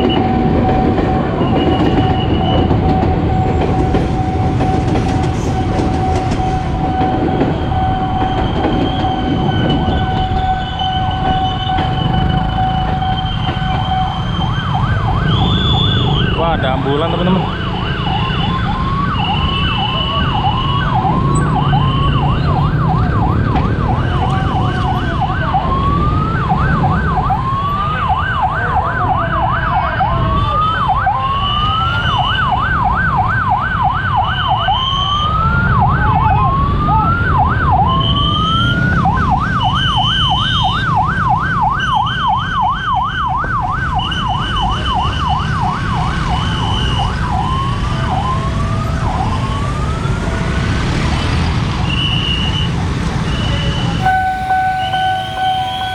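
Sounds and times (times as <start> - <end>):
level crossing alarm beeping: 0.0 - 27.3, 51.8 - 55.9
traffic rumble: 0.0 - 34.6, 35.2 - 55.9
ambulance siren: 0.0 - 55.9.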